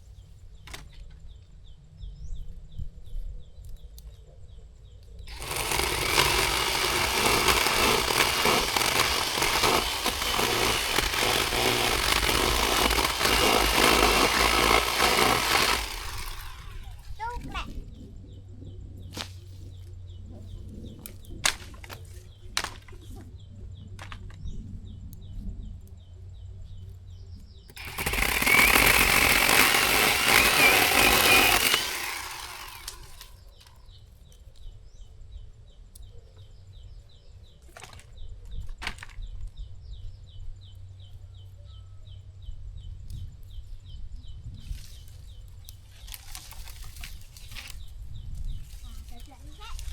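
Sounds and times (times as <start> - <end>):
cordless chainsaw running: 5.3 - 17.1, 27.7 - 33.4
sharp clicks: 27.7 - 33.7.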